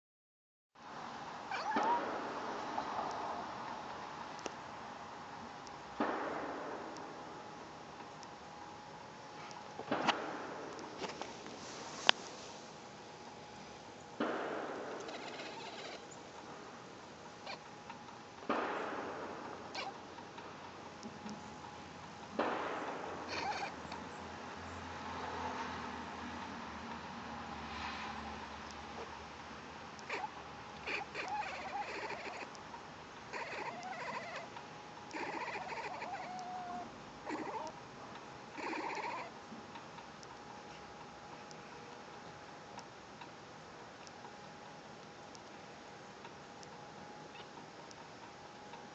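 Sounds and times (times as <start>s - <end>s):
kitten vocalizing: 1.5s - 2.0s, 15.1s - 16.0s, 23.3s - 23.8s, 30.0s - 32.5s, 33.4s - 34.5s, 35.1s - 37.8s, 38.6s - 39.3s.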